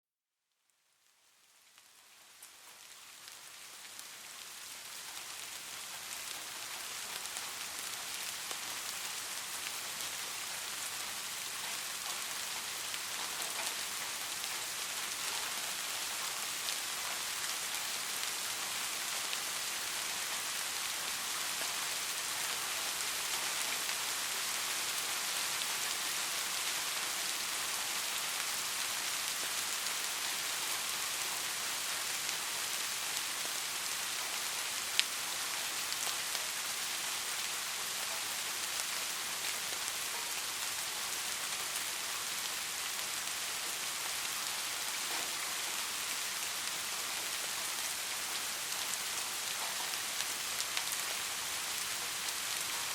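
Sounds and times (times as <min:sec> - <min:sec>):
steady rain falling: 0:00.5 - 0:52.9.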